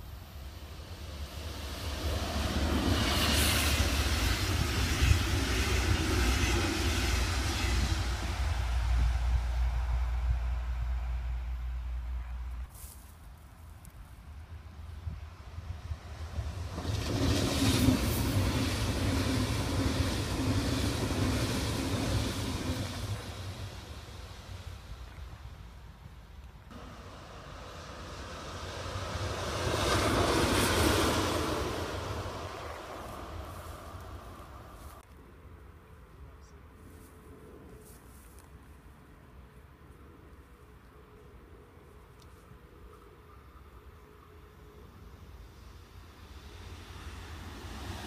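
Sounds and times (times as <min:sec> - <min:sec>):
train rumbling past: 0:00.0 - 0:12.7, 0:14.4 - 0:26.0, 0:26.7 - 0:35.0, 0:43.2 - 0:48.0.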